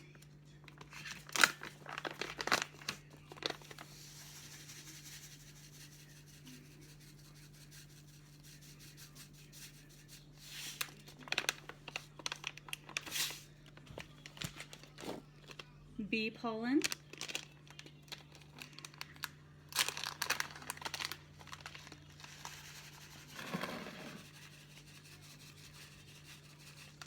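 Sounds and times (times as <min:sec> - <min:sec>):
plastic packaging crinkling: 0:00.7 - 0:04.2, 0:10.6 - 0:15.7, 0:16.8 - 0:24.7.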